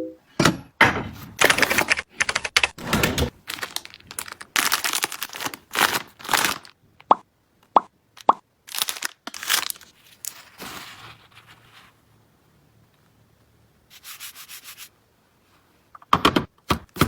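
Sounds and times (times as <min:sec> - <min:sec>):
plastic packaging crinkling: 0:03.3 - 0:06.8, 0:08.6 - 0:11.4.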